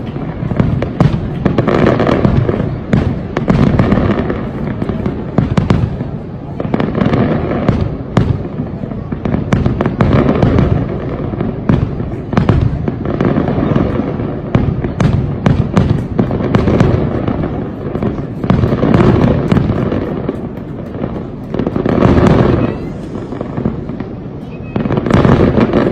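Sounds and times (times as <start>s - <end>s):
fireworks bursting with sharp bangs: 0.0s - 25.9s.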